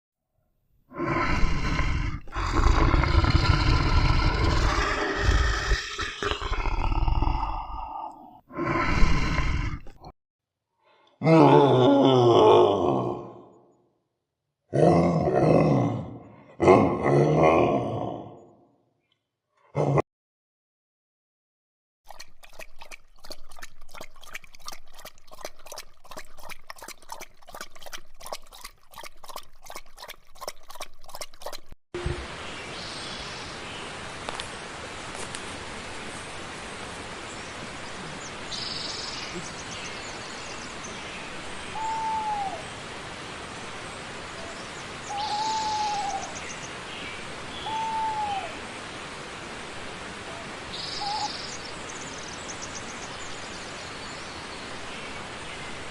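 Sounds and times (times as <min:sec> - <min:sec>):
bird calling and chirping: 0:44.4 - 0:48.6, 0:50.8 - 0:51.8.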